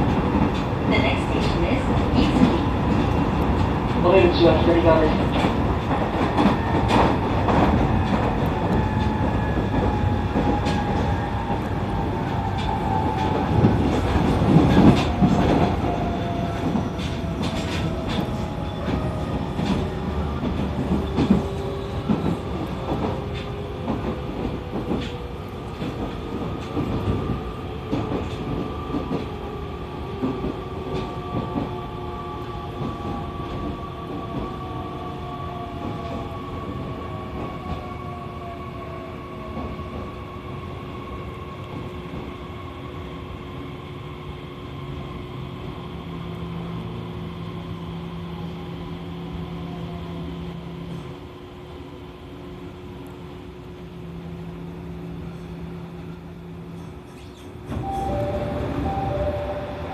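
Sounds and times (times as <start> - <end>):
train wheels rumbling on rails: 0.0 - 59.9
train motor whine: 57.7 - 59.9.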